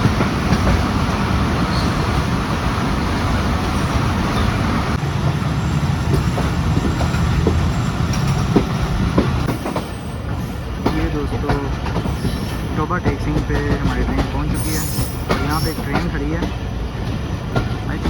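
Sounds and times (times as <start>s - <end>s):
train rumbling on rails: 0.0s - 18.0s
wheels clicking over rail joints: 5.9s - 18.0s.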